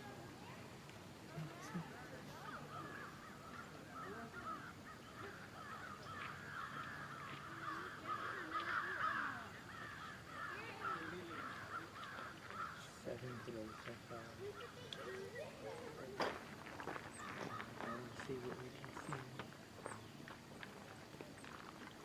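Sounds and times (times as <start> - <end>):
chorus of wavering animal calls: 1.3 - 15.9.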